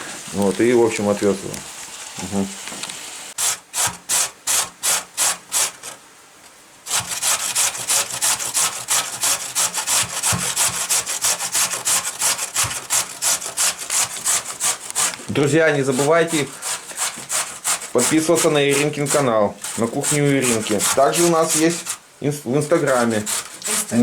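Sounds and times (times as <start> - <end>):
knife shredding cabbage on board: 6.9 - 22.0, 22.6 - 24.0.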